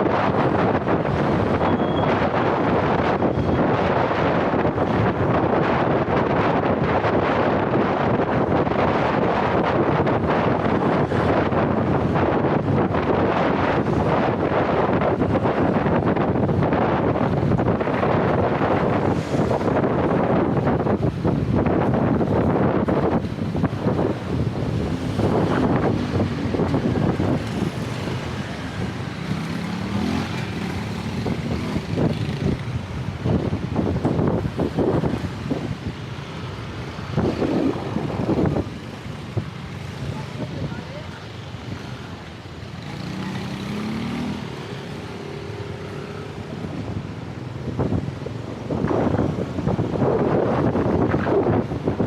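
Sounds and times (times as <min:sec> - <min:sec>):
road traffic: 0:00.0 - 0:52.0
wind buffeting microphone: 0:00.0 - 0:52.0.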